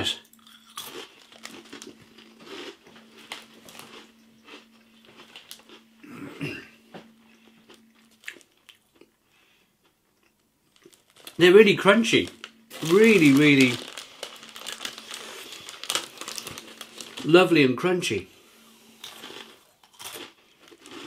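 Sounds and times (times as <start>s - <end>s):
crunchy snack being chewed: 0.3s - 5.9s, 7.4s - 9.1s, 10.2s - 11.4s, 12.7s - 17.3s, 19.0s - 21.0s.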